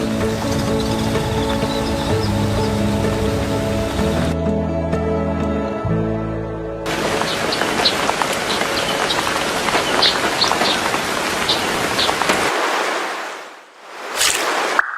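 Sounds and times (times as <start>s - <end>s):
rain falling: 0.0s - 4.4s, 6.9s - 14.8s.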